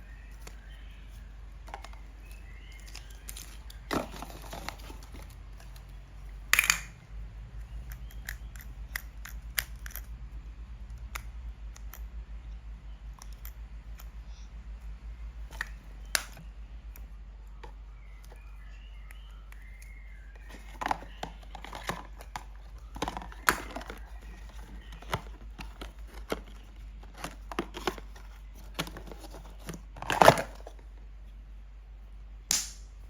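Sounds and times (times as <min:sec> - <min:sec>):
low steady hum: 0:00.0 - 0:33.0
packaging crinkling: 0:02.3 - 0:05.7, 0:20.4 - 0:30.8.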